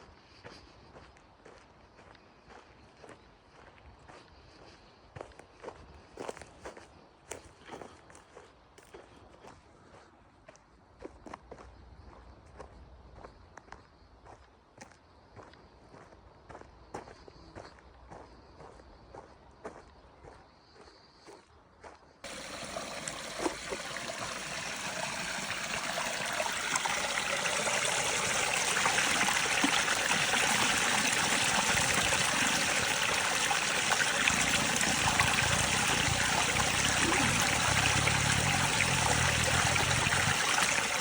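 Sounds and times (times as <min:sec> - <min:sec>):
rushing stream water: 0:22.2 - 0:41.0.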